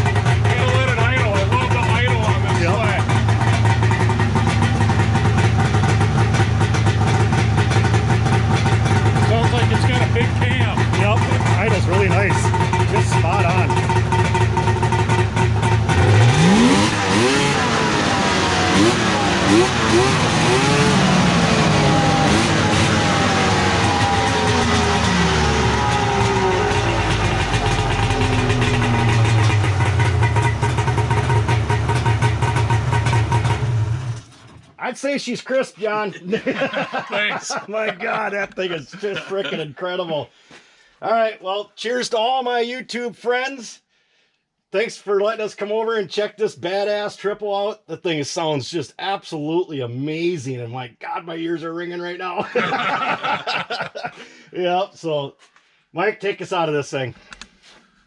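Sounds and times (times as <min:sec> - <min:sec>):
loud snowmobile engine running: 0:00.0 - 0:34.5, 0:52.5 - 0:53.8.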